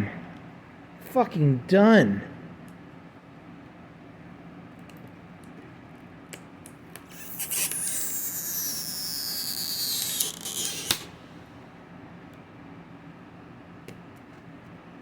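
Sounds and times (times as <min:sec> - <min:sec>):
sharp click: 0:07.0 - 0:11.2
adhesive strip squeaky peel: 0:07.0 - 0:11.4.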